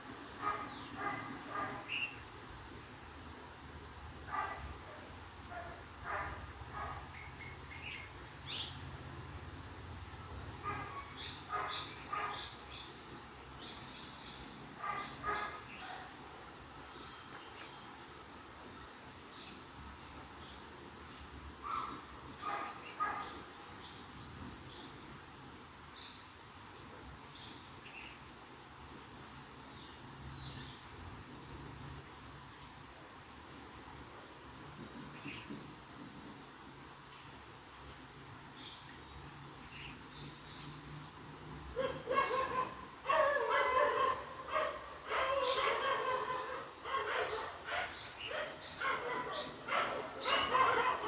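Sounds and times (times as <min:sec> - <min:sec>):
birds chirping: 0:41.8 - 0:51.0.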